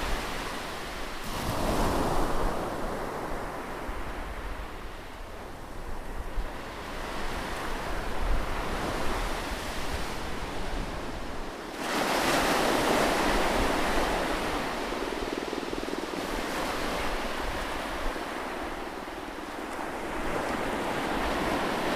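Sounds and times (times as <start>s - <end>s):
ocean surf washing: 0.0s - 21.9s.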